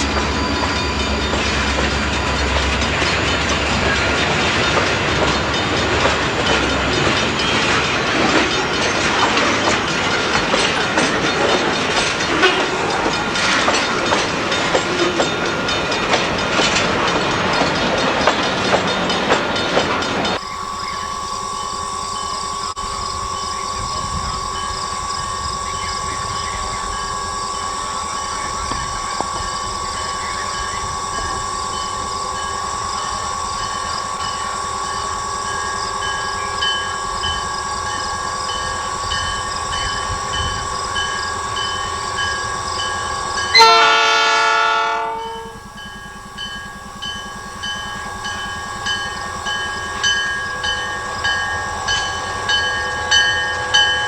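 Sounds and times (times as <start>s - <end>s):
ringing bell with regular beat: 0.0s - 43.6s, 45.0s - 54.0s
train wheels clicking over rails: 0.0s - 54.0s
locomotive horn blast: 43.4s - 45.8s.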